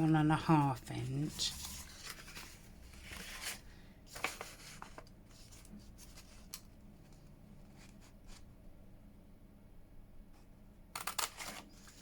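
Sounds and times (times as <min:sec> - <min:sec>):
paper rustling: 0:00.9 - 0:06.6.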